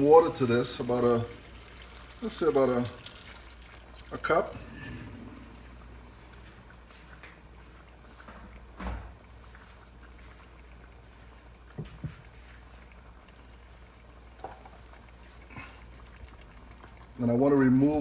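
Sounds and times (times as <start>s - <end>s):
pot of curry simmering: 0.0s - 18.0s
knocks against pot: 11.8s - 12.2s.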